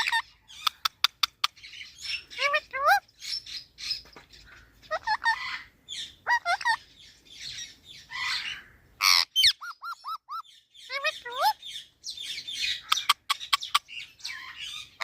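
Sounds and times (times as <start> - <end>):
parrot chattering and squawking: 0.0 - 15.0.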